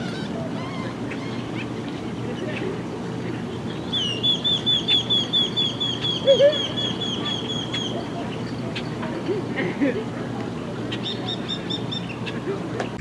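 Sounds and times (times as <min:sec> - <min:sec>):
small bird high chirps: 0:03.8 - 0:08.1.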